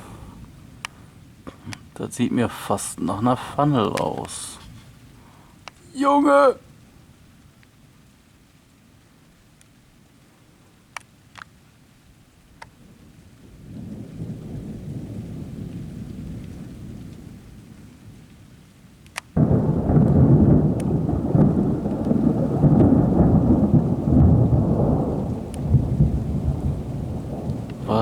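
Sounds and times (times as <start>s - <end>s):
rolling thunder rumble: 0.0s - 5.2s, 12.8s - 18.3s, 19.4s - 28.0s
sharp thunderclap: 13.6s - 17.4s, 19.4s - 28.0s.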